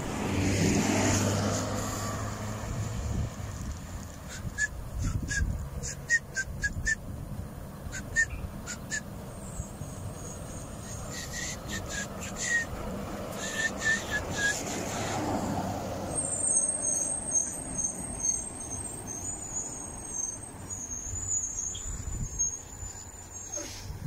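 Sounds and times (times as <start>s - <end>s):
highway traffic rumble: 0.0s - 24.0s
bird chirping: 18.2s - 23.6s.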